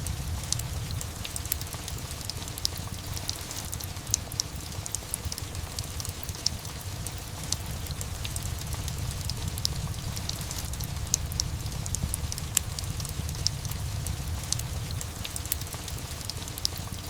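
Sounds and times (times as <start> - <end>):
fireplace crackling: 0.0 - 17.0
steady rain: 0.0 - 17.0
low rumble: 8.0 - 15.1.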